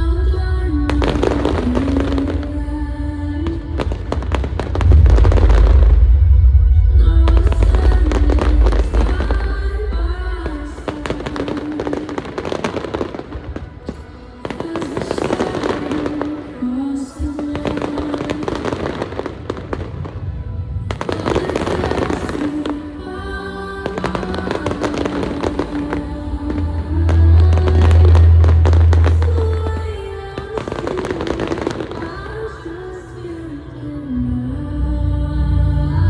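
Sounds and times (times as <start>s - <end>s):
deep low rumble: 2.6s - 11.4s, 26.2s - 30.0s
fireworks bursting and crackling: 3.5s - 6.0s, 7.2s - 23.0s, 23.8s - 32.3s.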